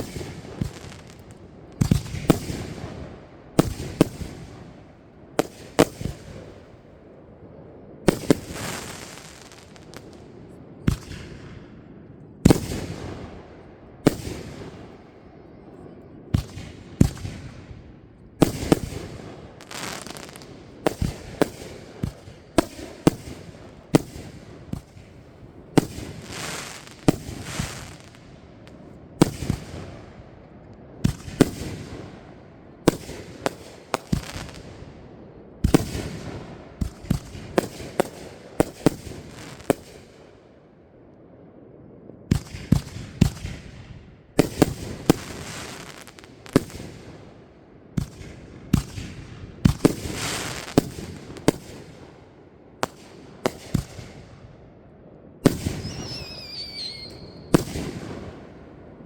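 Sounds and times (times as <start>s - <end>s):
crackling hiss: 8.1s - 10.3s, 18.4s - 30.1s, 44.5s - 52.1s.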